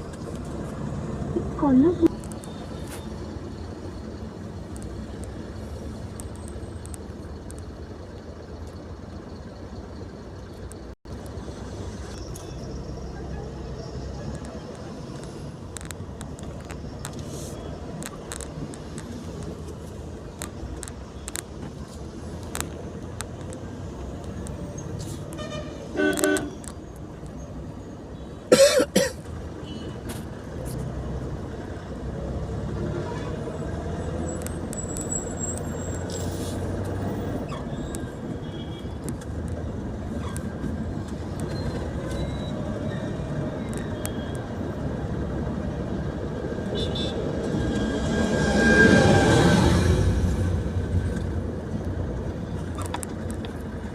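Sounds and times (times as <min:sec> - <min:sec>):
road and traffic noise: 0:00.0 - 0:53.9
vehicle horn honks: 0:25.4 - 0:26.6, 0:46.7 - 0:47.3.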